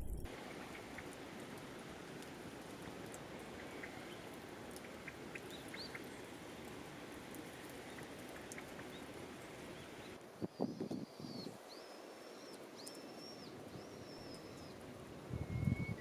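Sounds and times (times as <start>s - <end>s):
wood fire crackling: 0.0s - 8.9s.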